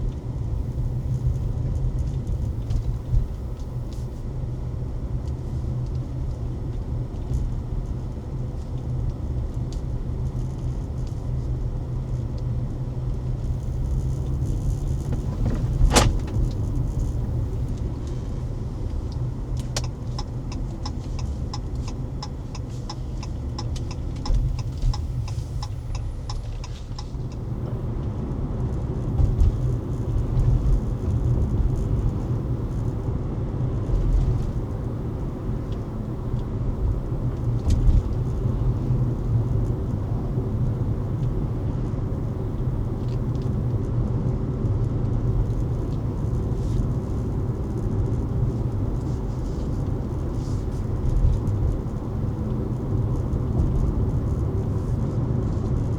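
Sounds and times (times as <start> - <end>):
car road rumble: 0.0 - 55.9
regular ticking: 19.6 - 27.8.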